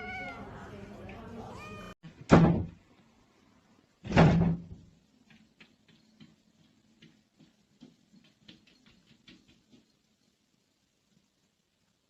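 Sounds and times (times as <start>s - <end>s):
loud thump: 2.3s - 2.8s.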